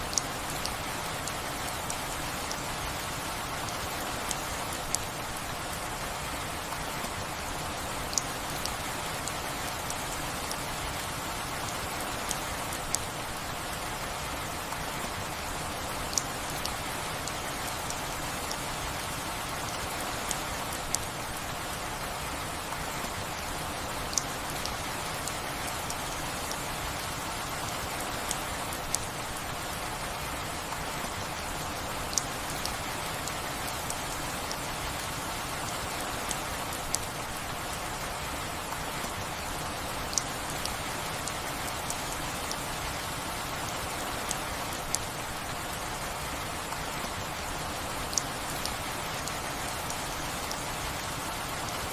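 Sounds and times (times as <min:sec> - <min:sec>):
steady rain hiss: 0:00.0 - 0:51.9.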